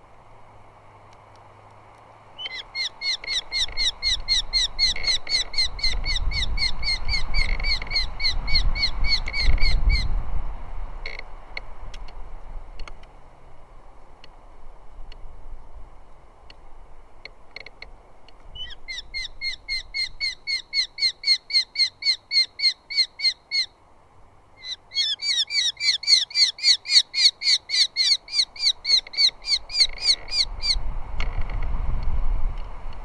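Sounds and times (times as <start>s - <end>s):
bird sharp repeated calls: 2.4s - 10.1s, 18.5s - 23.8s, 24.6s - 30.8s.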